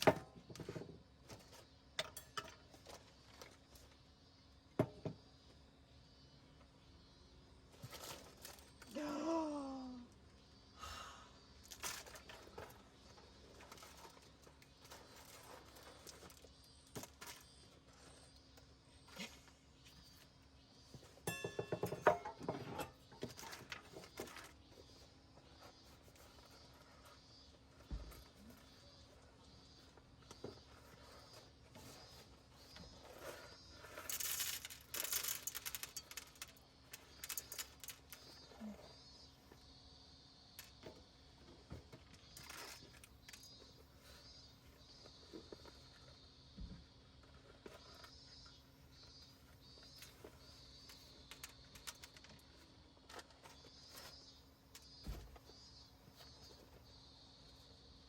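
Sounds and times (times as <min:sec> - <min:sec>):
small hard objects clinking: 0:33.0 - 0:38.6.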